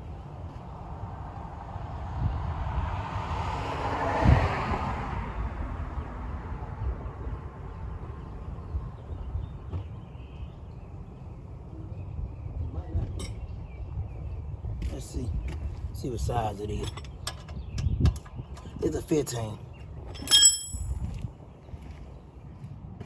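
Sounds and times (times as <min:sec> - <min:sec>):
wind rumble on microphone: 0:00.0 - 0:23.0
vehicle passing by: 0:01.6 - 0:07.1.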